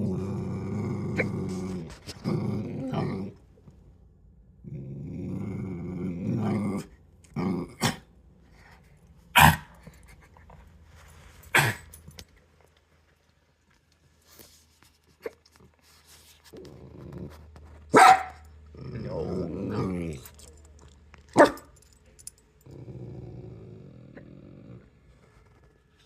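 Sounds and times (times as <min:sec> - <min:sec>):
dog growling: 0:00.0 - 0:03.5, 0:04.6 - 0:08.1, 0:16.5 - 0:17.8, 0:18.6 - 0:20.4, 0:22.6 - 0:25.6
dog barking: 0:09.4 - 0:09.7, 0:17.9 - 0:18.4, 0:21.4 - 0:21.7.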